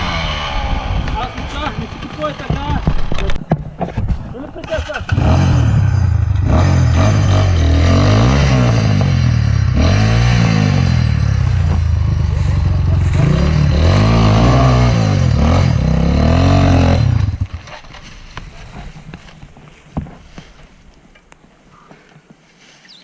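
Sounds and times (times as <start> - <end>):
dirt bike engine revving: 0.0 - 3.3, 4.6 - 17.9.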